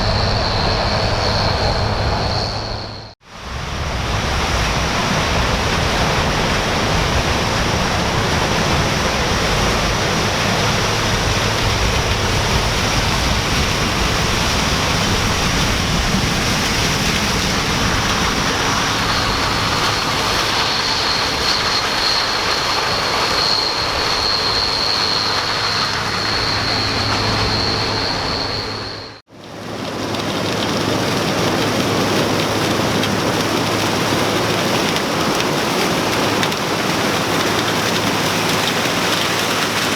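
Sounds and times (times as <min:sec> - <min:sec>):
high steady whine: 0:00.0 - 0:29.2
combine harvester running: 0:00.0 - 0:39.9.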